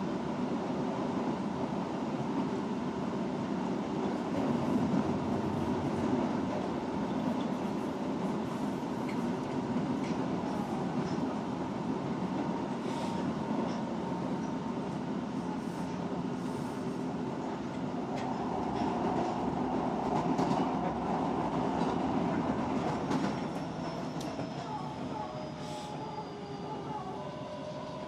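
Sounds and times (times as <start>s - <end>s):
train wheels rumbling on rail: 0.0s - 26.3s
rail-joint clicks: 9.0s - 10.2s, 20.1s - 20.9s
faint thin whining tones: 23.6s - 28.0s.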